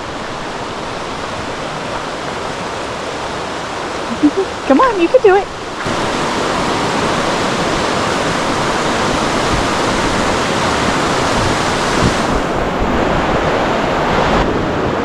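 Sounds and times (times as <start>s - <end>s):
fast-flowing water rushing: 0.0s - 15.0s.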